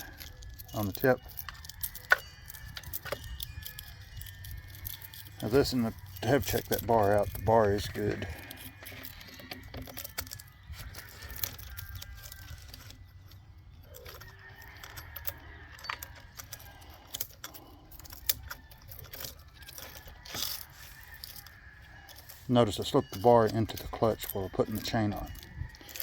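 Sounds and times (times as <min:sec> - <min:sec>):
metallic clinks and chain rattle: 0:00.0 - 0:26.0.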